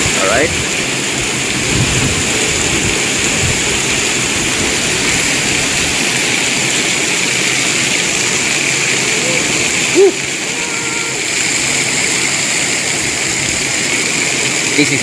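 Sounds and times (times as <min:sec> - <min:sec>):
heavy rain: 0:00.0 - 0:15.0.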